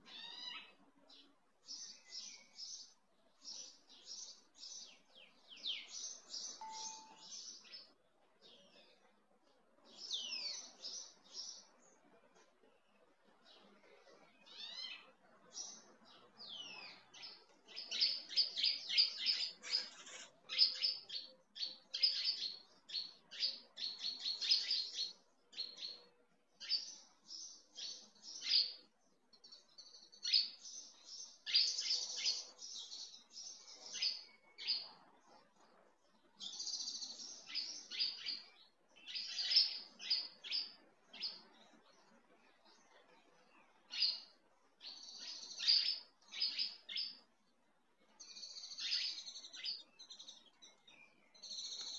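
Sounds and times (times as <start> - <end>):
small birds chirping: 0.0 - 51.9.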